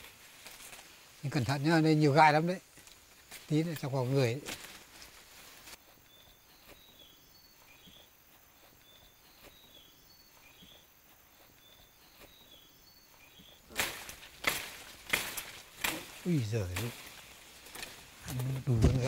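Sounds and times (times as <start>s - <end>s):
branches and leaves rustling: 0.0s - 19.0s.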